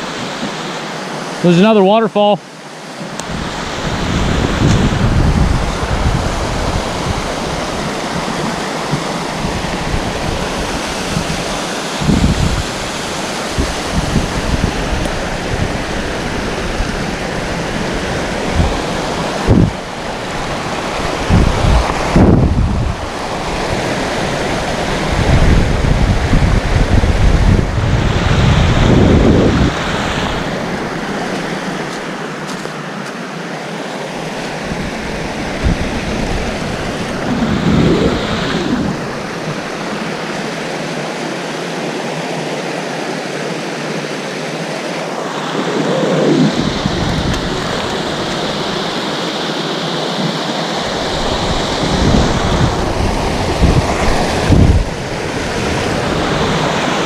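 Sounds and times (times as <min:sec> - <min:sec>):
waterfall rushing: 0:00.0 - 0:57.0
wind rumble on microphone: 0:03.2 - 0:32.1, 0:34.5 - 0:40.4, 0:45.4 - 0:49.2, 0:50.2 - 0:57.0.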